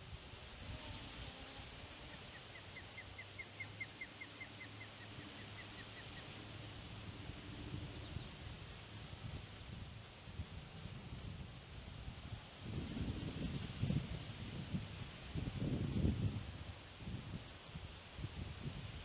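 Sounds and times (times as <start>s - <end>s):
wind rumble: 7.2s - 17.5s.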